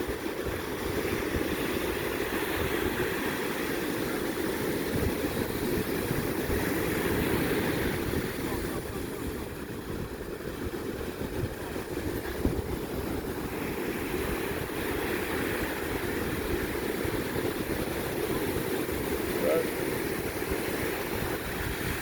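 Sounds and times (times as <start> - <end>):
ocean surf: 0.0 - 22.0
wind buffeting microphone: 0.0 - 22.0.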